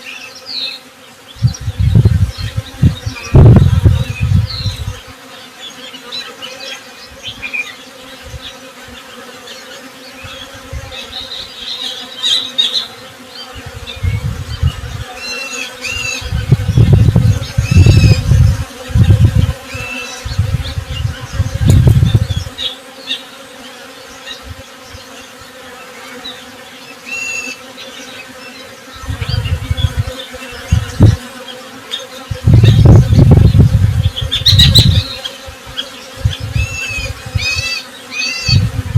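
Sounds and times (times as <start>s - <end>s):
birds chirping: 0.0s - 38.9s
honey bees buzzing: 0.0s - 38.9s.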